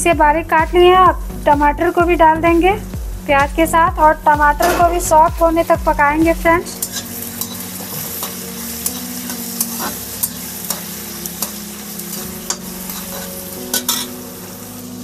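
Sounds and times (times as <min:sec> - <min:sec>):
vegetables sizzling in hot oil: 0:00.0 - 0:15.0
metal spatula scraping pan: 0:06.7 - 0:14.2.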